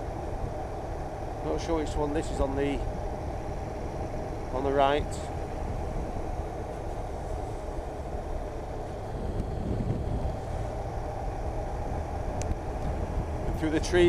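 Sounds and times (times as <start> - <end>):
motorcycle engine rumble: 0.0 - 14.0
wind noise on microphone: 8.8 - 13.7.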